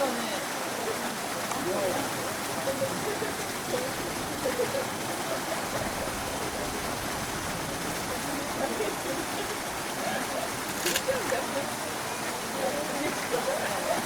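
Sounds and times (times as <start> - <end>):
faint distant voices: 0.0 - 14.0.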